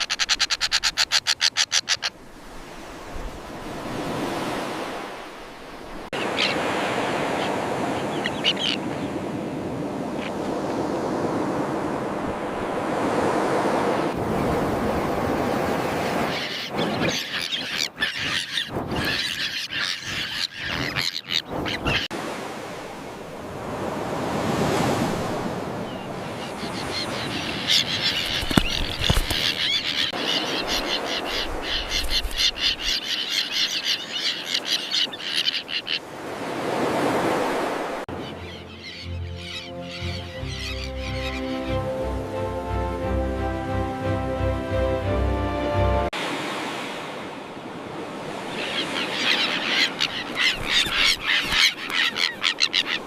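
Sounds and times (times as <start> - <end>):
surf washing in: 2.2 - 17.1, 21.5 - 33.0, 35.9 - 38.3, 41.5 - 53.0.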